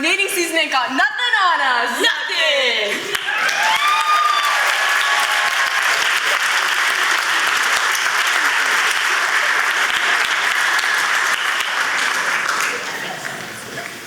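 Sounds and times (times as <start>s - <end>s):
audience applauding: 3.0s - 14.0s
cheering shouts: 3.2s - 11.0s.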